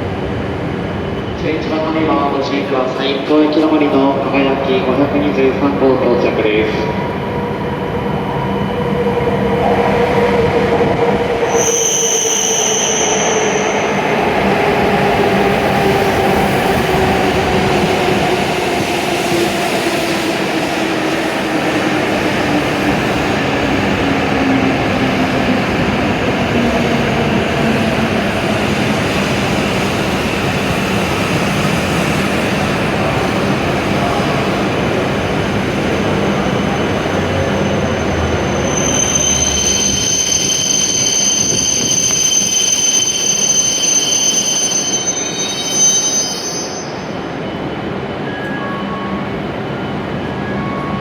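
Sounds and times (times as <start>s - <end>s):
train rushing and braking: 0.0s - 51.0s
brief high tone: 43.8s - 47.2s.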